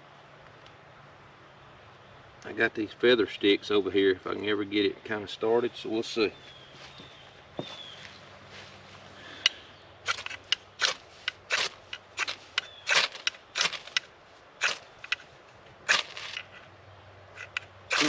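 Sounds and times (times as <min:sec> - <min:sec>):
sharp scrapes and snaps: 0:09.4 - 0:15.3, 0:15.9 - 0:16.7, 0:17.4 - 0:18.0.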